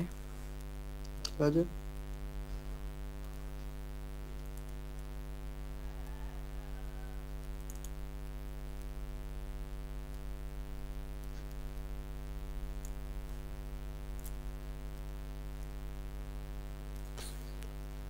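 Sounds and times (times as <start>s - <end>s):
electrical hum: 0.0s - 18.0s
faint clicks: 7.2s - 8.0s.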